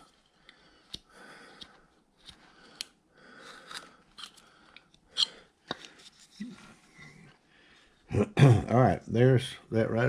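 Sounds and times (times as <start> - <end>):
knife carving wood: 0.9 - 6.6.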